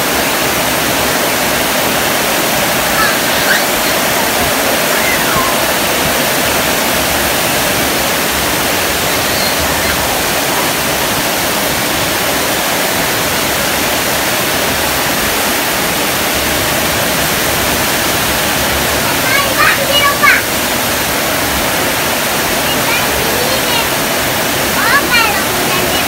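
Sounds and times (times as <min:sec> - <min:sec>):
heavy rain on metal roofs: 0:00.0 - 0:26.0.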